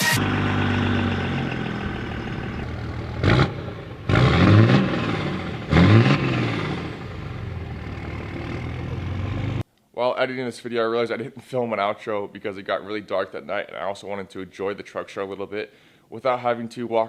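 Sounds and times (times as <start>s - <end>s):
truck engine revving: 0.0s - 9.6s.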